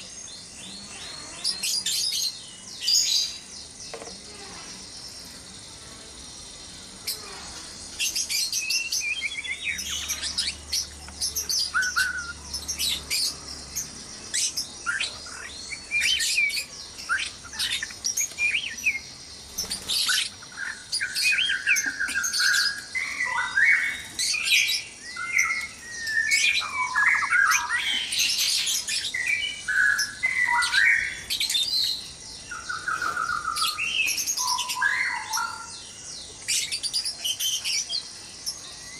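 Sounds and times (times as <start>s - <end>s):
birds chirping and whistling: 0.0s - 5.7s, 6.4s - 38.9s.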